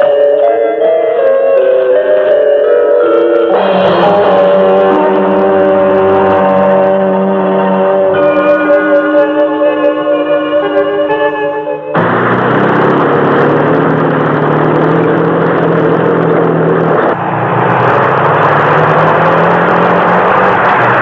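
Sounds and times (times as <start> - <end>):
eerie music: 0.0 - 21.0
loud mechanical roar: 3.5 - 9.4, 11.9 - 21.0
low hum: 11.9 - 17.2.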